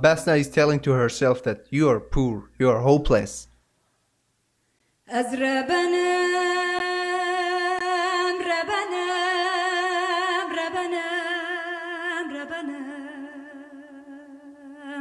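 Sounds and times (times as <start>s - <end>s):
woman singing with vibrato: 5.1s - 15.0s.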